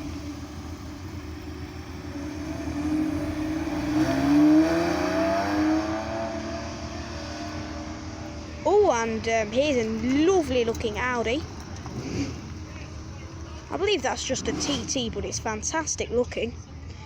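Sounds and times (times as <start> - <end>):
car accelerating past: 0.0 - 8.7, 11.0 - 15.4.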